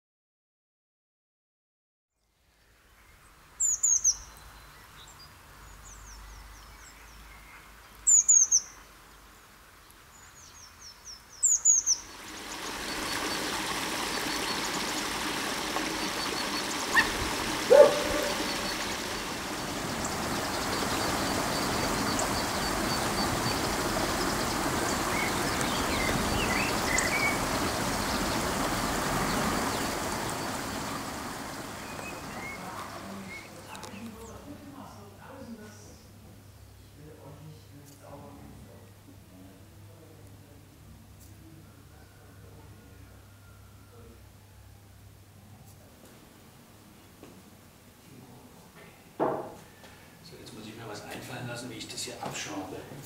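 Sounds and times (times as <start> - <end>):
birds singing: 2.6 - 37.0
steady rushing background: 12.1 - 32.8.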